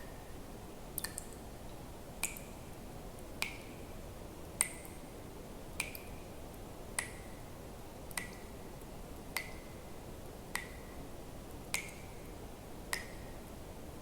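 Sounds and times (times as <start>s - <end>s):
faint steady hiss: 0.0s - 14.0s
water drops plinking into water: 1.0s - 1.4s, 2.2s - 2.6s, 3.4s - 3.7s, 4.6s - 5.0s, 5.8s - 6.2s, 7.0s - 7.3s, 8.1s - 8.5s, 9.3s - 9.8s, 10.5s - 11.0s, 11.7s - 12.1s, 12.9s - 13.3s.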